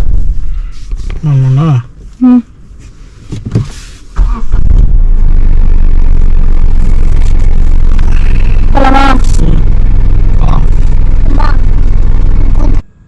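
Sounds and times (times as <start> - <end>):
car engine and road noise: 0.0 - 13.0
person speaking: 7.9 - 11.7.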